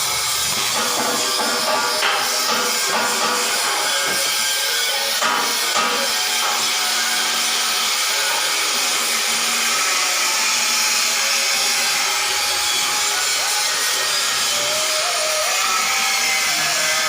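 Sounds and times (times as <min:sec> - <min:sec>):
loud hissing machine noise: 0:00.0 - 0:17.0.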